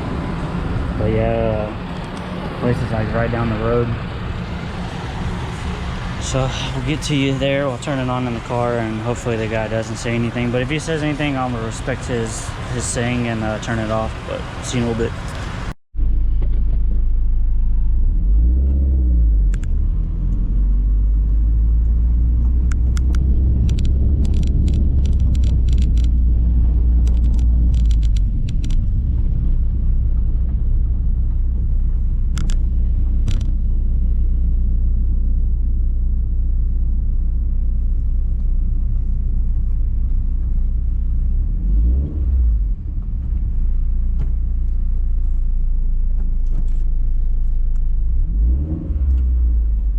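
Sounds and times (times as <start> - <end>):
car engine deep rumble: 0.0 - 49.9
sharp clicks: 22.6 - 26.3, 27.0 - 28.9, 32.3 - 32.6, 33.2 - 33.5.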